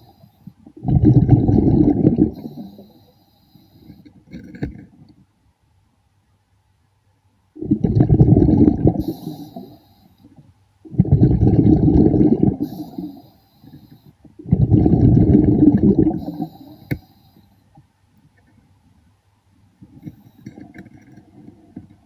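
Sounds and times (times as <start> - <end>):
air bubbles rumbling underwater: 0.8 - 2.8, 7.6 - 9.3, 10.9 - 12.9, 14.4 - 16.6.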